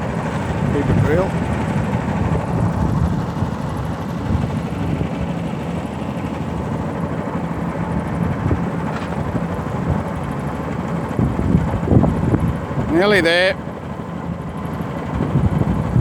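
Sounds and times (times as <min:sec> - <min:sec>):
ferry engine droning: 0:00.0 - 0:16.0.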